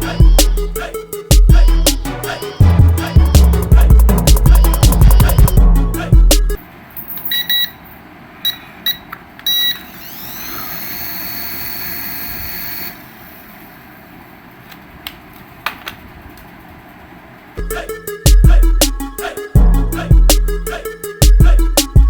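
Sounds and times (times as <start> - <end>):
short electronic beeps: 7.3 - 7.8, 8.4 - 9.9
small electric motor whirring: 9.8 - 13.1.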